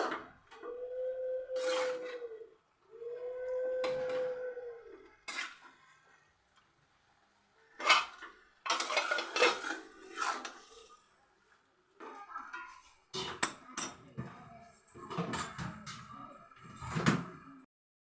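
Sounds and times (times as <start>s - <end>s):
spoon scraping meat in a pot: 1.6s - 2.3s, 5.3s - 5.8s, 7.7s - 11.0s.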